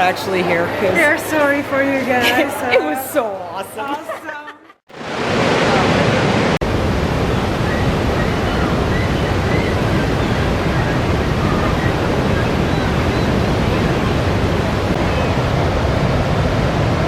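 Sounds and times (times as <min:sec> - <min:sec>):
waterfall roaring: 0:04.9 - 0:17.0.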